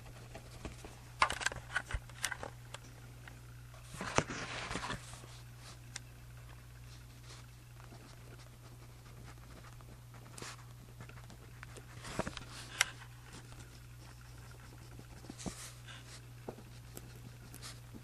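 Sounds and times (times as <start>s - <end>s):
steady low hum: 0.0s - 18.0s
pen scratching on paper: 7.9s - 12.0s, 13.3s - 16.0s.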